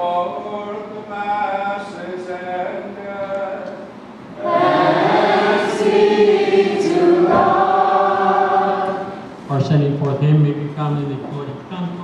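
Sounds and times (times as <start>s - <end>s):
church choir singing a hymn: 4.4s - 9.5s.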